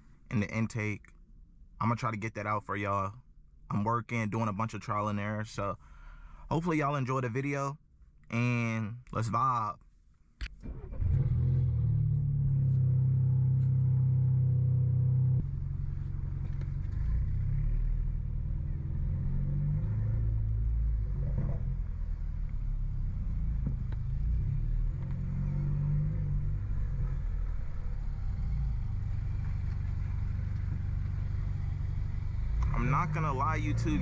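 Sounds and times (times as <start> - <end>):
car exhaust drone: 10.6 - 34.0
car exhaust revving: 10.8 - 34.0.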